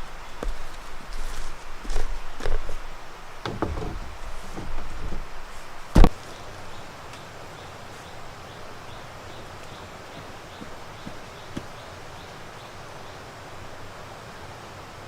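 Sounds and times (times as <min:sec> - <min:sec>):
knocks: 0:03.4 - 0:06.2.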